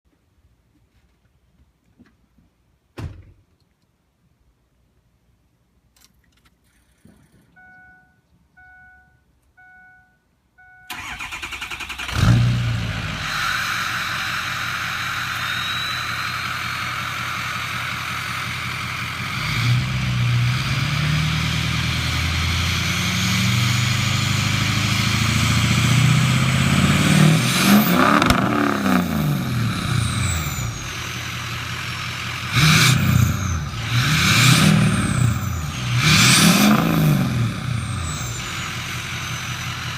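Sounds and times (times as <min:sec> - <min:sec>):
vehicle warning chime beeping: 0:07.5 - 0:11.6
diesel pickup engine starting and revving: 0:10.9 - 0:39.9.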